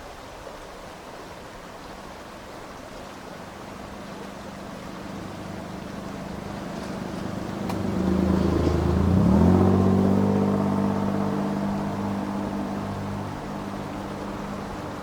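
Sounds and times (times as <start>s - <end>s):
vehicle engine passing by: 3.8s - 15.0s.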